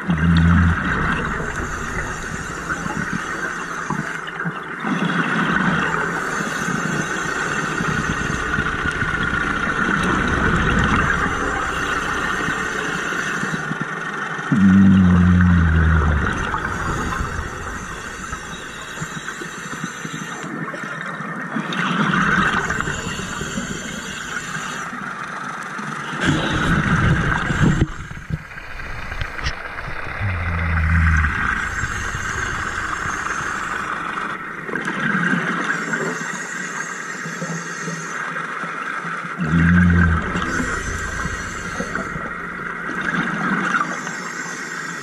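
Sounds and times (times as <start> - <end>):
exhaled bubbles rumbling: 0.0 - 13.9, 14.5 - 19.5, 21.6 - 24.6, 26.2 - 35.5, 39.4 - 43.9.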